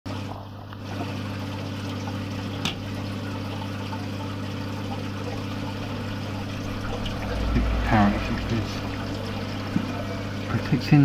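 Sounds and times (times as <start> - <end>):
aquarium pump humming: 0.1 - 11.0
water trickling: 0.1 - 11.0.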